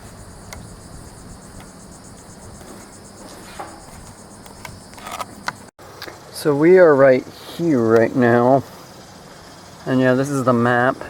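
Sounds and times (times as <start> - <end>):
faint clicks: 0.0 - 1.8
insect chorus trilling: 0.0 - 5.7, 6.5 - 11.0.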